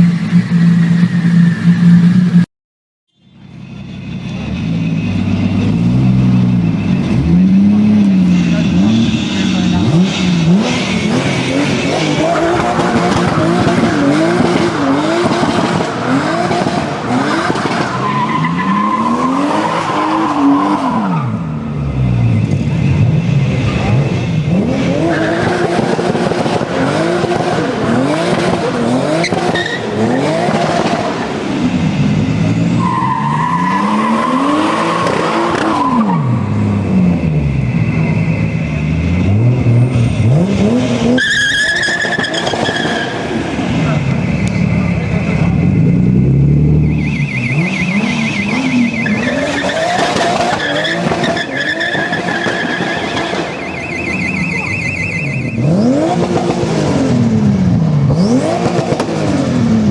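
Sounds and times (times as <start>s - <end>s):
car engine revving hard: 5.4s - 22.0s, 22.9s - 53.6s, 55.5s - 59.9s
tyres squealing in skids: 8.3s - 22.6s, 29.1s - 31.2s, 32.7s - 36.6s, 41.1s - 45.5s, 46.8s - 56.4s.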